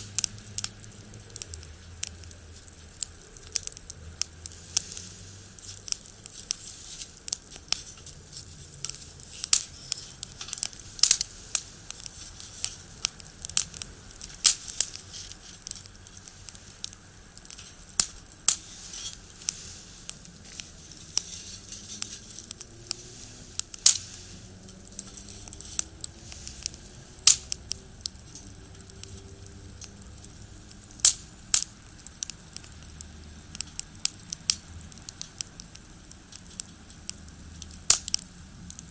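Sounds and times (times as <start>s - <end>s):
firewood crackling and popping: 0.0s - 38.9s
faint passing vehicle: 19.6s - 31.4s.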